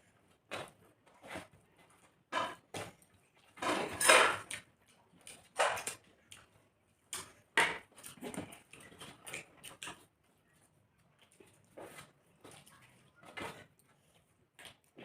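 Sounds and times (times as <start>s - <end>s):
chewing and mouth smacking: 4.4s - 15.0s.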